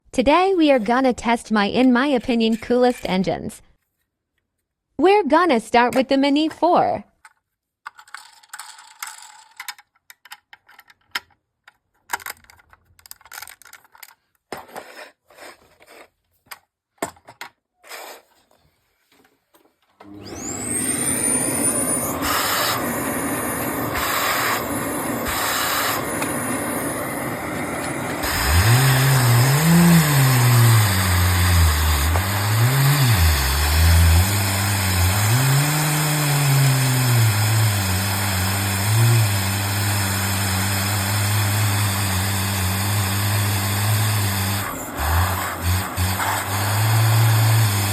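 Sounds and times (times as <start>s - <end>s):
electric motor whine: 20.0s - 47.9s
low engine running note: 20.2s - 35.6s.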